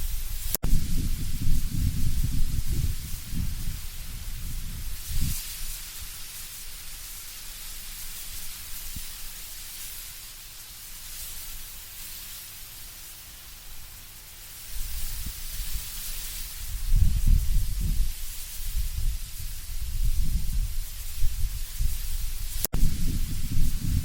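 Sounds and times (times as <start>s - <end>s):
low wind rumble: 0.0s - 5.4s, 16.6s - 24.0s
leaves rustling in wind: 0.0s - 24.0s.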